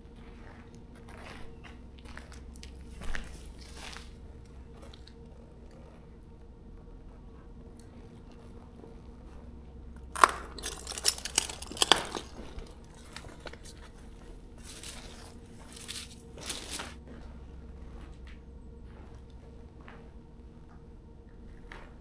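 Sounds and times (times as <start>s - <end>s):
debris crunching underfoot: 10.2s - 17.0s.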